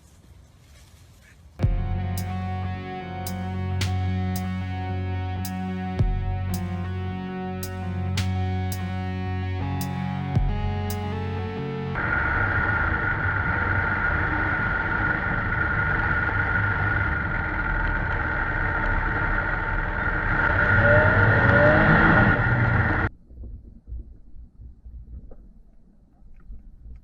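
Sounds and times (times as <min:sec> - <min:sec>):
vehicle engine driving: 0:01.6 - 0:23.2.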